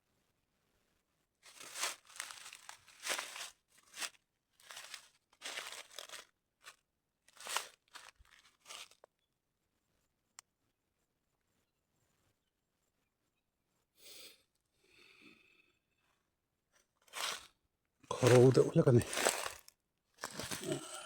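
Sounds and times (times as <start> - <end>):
dry crinkling and crunching: 1.4 - 9.1, 17.0 - 17.5, 18.1 - 21.0.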